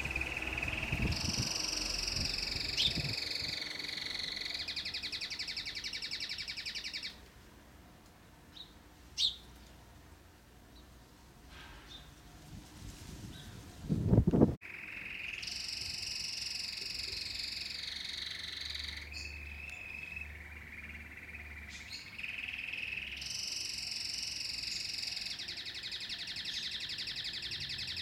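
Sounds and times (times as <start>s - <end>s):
canary singing trills: 0.0s - 7.2s, 8.5s - 9.5s, 14.6s - 28.0s.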